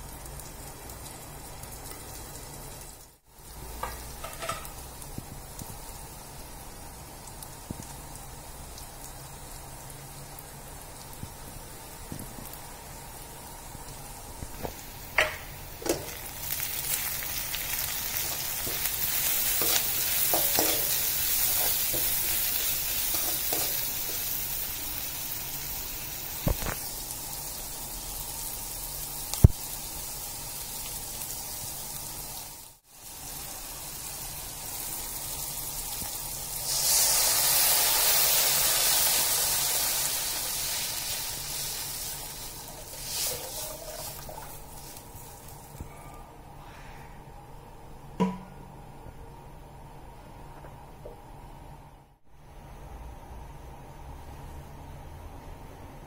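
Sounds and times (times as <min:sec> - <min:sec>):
onions sizzling in oil: 0:00.0 - 0:45.8
water hissing in hot pan: 0:00.0 - 0:45.8
spatula knocking on pan: 0:48.2 - 0:48.5.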